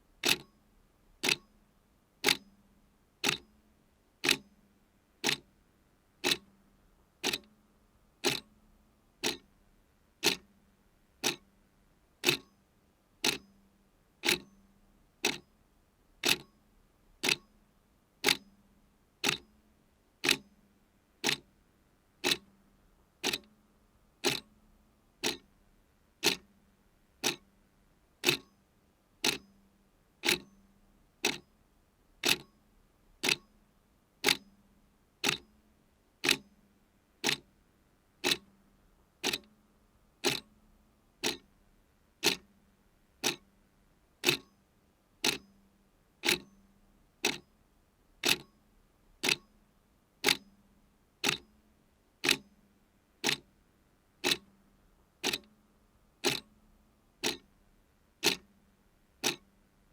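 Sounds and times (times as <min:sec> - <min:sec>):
clock ticking: 0:00.2 - 0:00.5, 0:01.2 - 0:01.4, 0:02.2 - 0:02.4, 0:03.2 - 0:03.4, 0:04.2 - 0:04.4, 0:05.2 - 0:05.4, 0:06.2 - 0:06.4, 0:07.2 - 0:07.5, 0:08.2 - 0:08.5, 0:09.2 - 0:09.4, 0:10.2 - 0:10.4, 0:11.2 - 0:11.4, 0:12.2 - 0:12.5, 0:13.2 - 0:13.4, 0:14.2 - 0:14.5, 0:15.2 - 0:15.4, 0:16.2 - 0:16.5, 0:17.2 - 0:17.4, 0:19.2 - 0:19.4, 0:20.2 - 0:20.4, 0:21.2 - 0:21.4, 0:22.2 - 0:22.4, 0:23.2 - 0:23.5, 0:24.2 - 0:24.5, 0:25.2 - 0:25.5, 0:26.2 - 0:26.4, 0:27.2 - 0:27.4, 0:28.2 - 0:28.5, 0:29.2 - 0:29.4, 0:30.2 - 0:30.5, 0:31.2 - 0:31.4, 0:32.2 - 0:32.5, 0:33.2 - 0:33.5, 0:34.2 - 0:34.4, 0:35.2 - 0:35.5, 0:36.2 - 0:36.4, 0:37.2 - 0:37.4, 0:38.2 - 0:38.5, 0:39.2 - 0:39.5, 0:40.2 - 0:40.5, 0:41.2 - 0:41.5, 0:42.2 - 0:42.5, 0:43.2 - 0:43.4, 0:44.2 - 0:44.5, 0:45.2 - 0:45.4, 0:46.2 - 0:46.5, 0:47.2 - 0:47.4, 0:48.2 - 0:48.5, 0:49.2 - 0:49.5, 0:50.2 - 0:50.4, 0:51.2 - 0:51.4, 0:52.2 - 0:52.4, 0:53.2 - 0:53.4, 0:54.2 - 0:54.5, 0:55.2 - 0:55.5, 0:56.2 - 0:56.5, 0:57.2 - 0:57.5, 0:58.2 - 0:58.5, 0:59.2 - 0:59.5.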